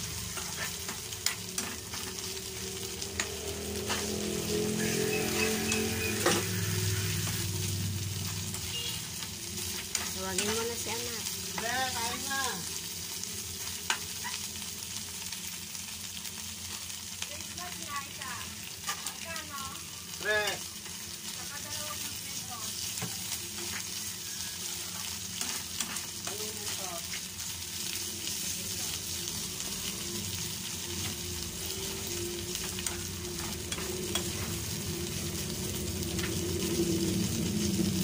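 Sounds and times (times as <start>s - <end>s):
shrimp paste sizzling in a pan: 0.0s - 38.0s
metal spoon scraping a pan: 0.2s - 2.3s, 3.1s - 7.5s, 9.6s - 10.9s, 23.5s - 27.3s, 31.0s - 34.8s.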